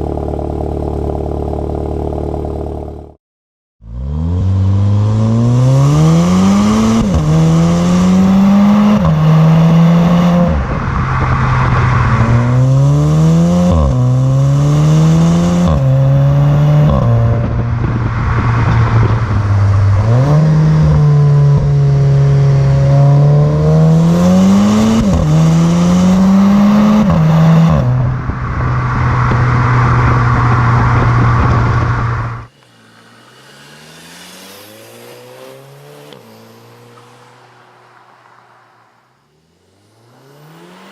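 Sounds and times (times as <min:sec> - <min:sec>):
car exhaust accelerating hard: 0:03.8 - 0:36.9.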